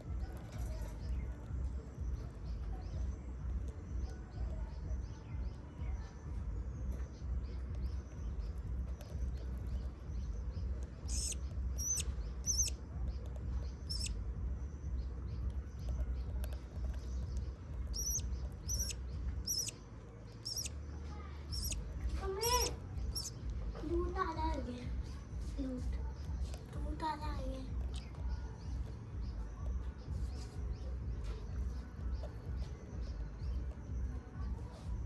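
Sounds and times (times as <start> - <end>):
low rumble: 0.0 - 35.0
budgerigars chirping: 7.8 - 14.2, 15.0 - 20.7, 21.5 - 23.6.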